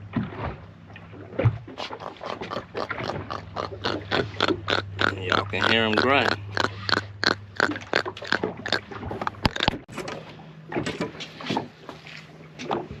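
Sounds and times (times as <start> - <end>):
fish grunting croaks: 1.8 - 9.9.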